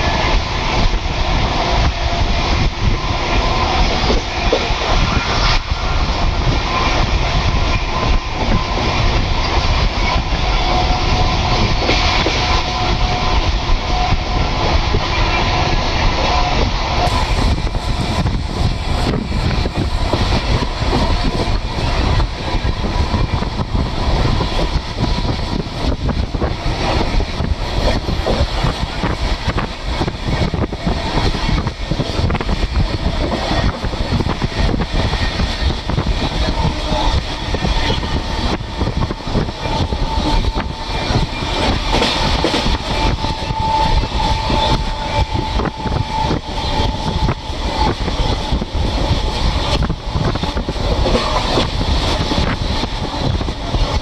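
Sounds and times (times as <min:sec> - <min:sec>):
train rumble: 0:00.0 - 0:54.0
wheels clattering on rails: 0:01.7 - 0:54.0.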